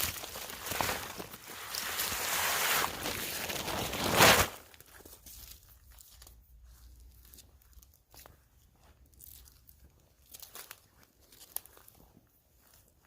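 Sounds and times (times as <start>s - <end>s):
loud rustling crunching: 0.0s - 5.6s.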